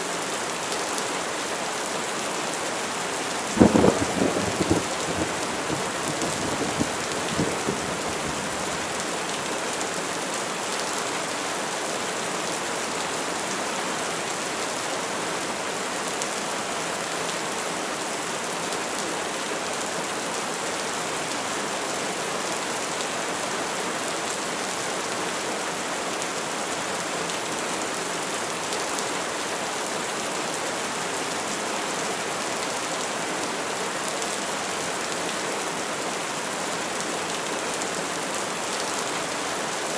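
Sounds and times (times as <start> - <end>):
heavy rain hiss: 3.2 - 10.6
thunder rumble: 3.5 - 9.2.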